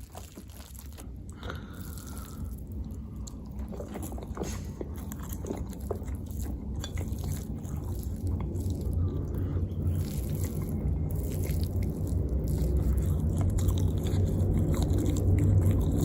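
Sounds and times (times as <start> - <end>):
chewing food: 0.0 - 16.0
low rumble: 0.0 - 16.0.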